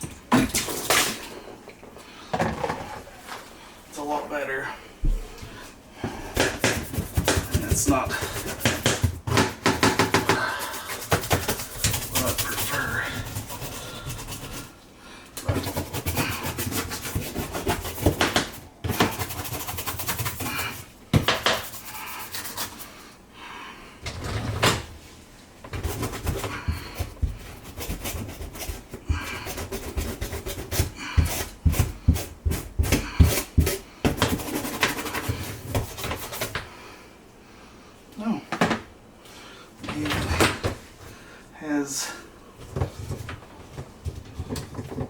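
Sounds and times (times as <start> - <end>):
hand scrubbing and scraping: 6.4 - 9.2, 10.2 - 14.8, 15.5 - 23.1, 25.8 - 36.5
knocks on dishwasher parts: 8.6 - 10.4.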